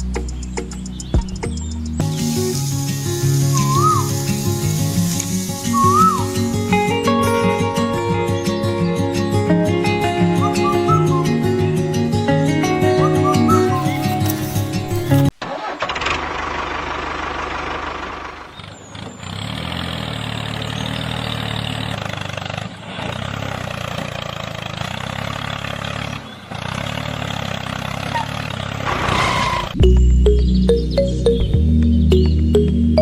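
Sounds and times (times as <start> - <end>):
music: 0.0 - 15.3, 29.8 - 33.0
engine running: 1.6 - 33.0.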